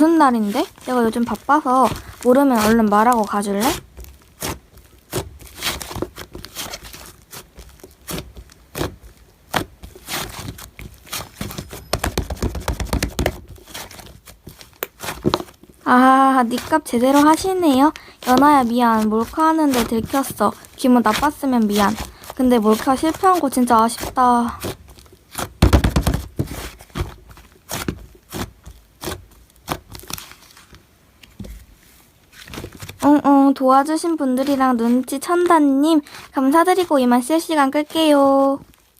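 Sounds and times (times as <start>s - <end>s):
slime squished by hand: 0.3s - 30.7s
slime squishing and popping: 0.5s - 15.6s.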